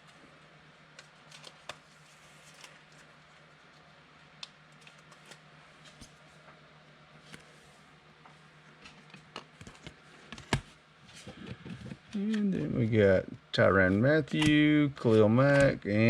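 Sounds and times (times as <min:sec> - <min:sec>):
low electrical hum: 0:00.0 - 0:16.0
cards being shuffled: 0:00.9 - 0:03.1, 0:13.9 - 0:16.0.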